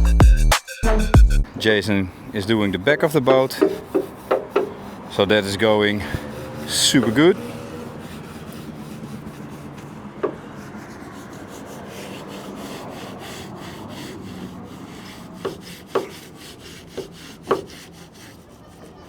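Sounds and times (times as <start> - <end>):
hand scrubbing boat hull: 1.6 - 19.0
short knocks: 3.0 - 4.8.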